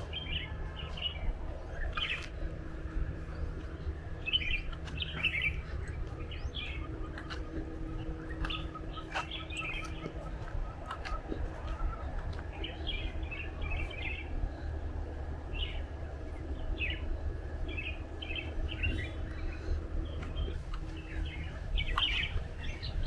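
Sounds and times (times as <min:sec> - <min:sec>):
birds chirping: 0:00.0 - 0:23.0
low background rumble: 0:00.0 - 0:23.0.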